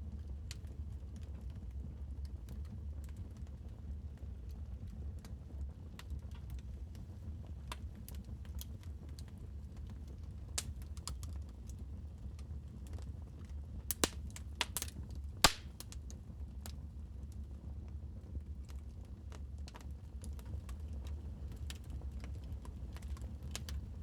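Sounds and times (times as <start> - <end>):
wood fire crackling: 6.0 - 17.4, 18.6 - 24.0
loud crack of fire: 13.8 - 16.8.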